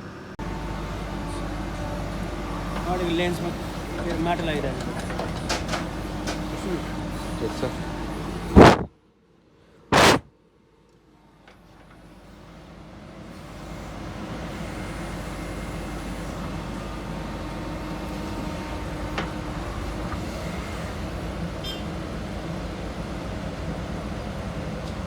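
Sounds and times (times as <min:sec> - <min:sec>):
heavy diesel engine running: 0:00.0 - 0:08.9.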